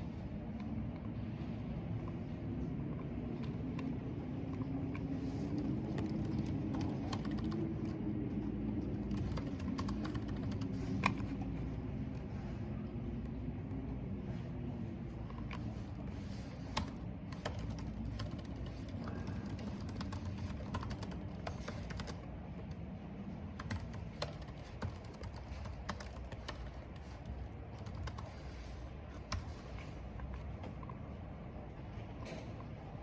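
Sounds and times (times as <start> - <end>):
computer keyboard typing: 3.0 - 11.6, 15.3 - 31.0.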